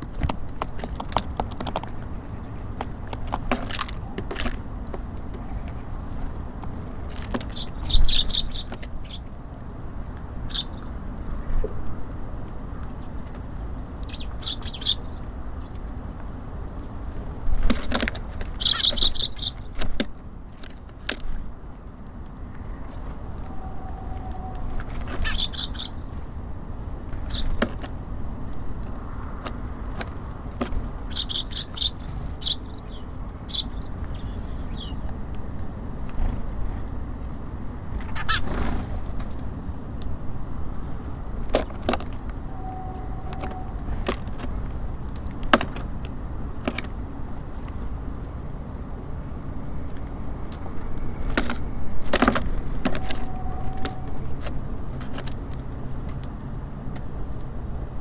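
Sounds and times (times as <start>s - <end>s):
low rumble of city traffic: 0.0s - 58.0s
small birds chirping: 1.8s - 3.0s, 7.3s - 9.4s, 10.4s - 11.6s, 12.8s - 16.0s, 18.4s - 20.0s, 21.2s - 26.2s, 27.2s - 27.6s, 30.8s - 35.2s, 38.0s - 38.5s.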